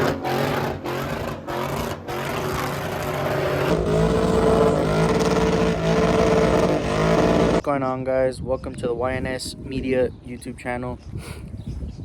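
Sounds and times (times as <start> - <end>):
vehicle engines droning: 0.0 - 7.6.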